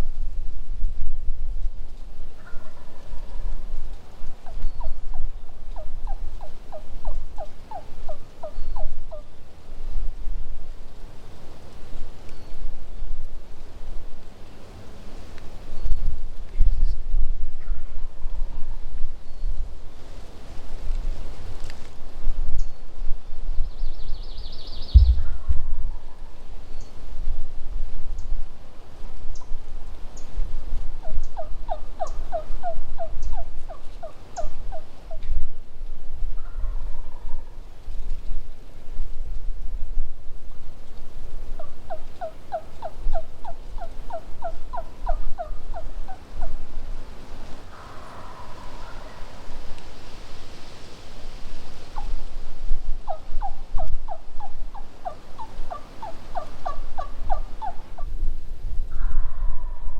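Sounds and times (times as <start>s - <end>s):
turkey yelping: 4.4s - 9.3s, 31.4s - 35.2s, 41.6s - 46.6s, 47.7s - 49.5s, 53.1s - 58.1s
low rumble: 24.9s - 26.3s.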